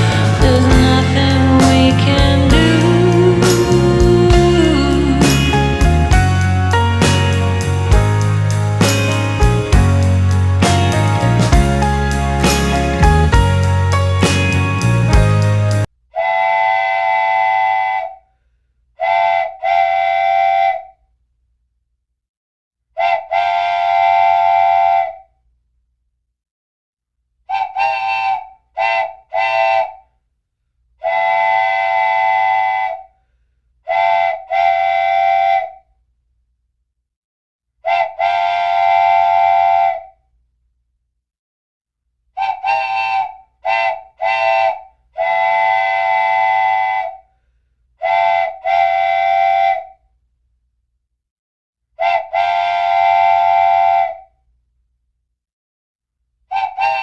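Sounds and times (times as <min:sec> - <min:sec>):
musical horn blasts: 0:00.0 - 0:03.7, 0:04.3 - 0:15.8.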